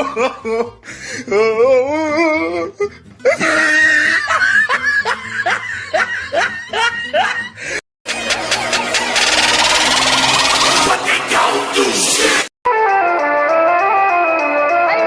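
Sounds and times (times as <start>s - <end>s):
person laughing: 3.3s - 7.6s
loud busy noise: 8.0s - 11.8s.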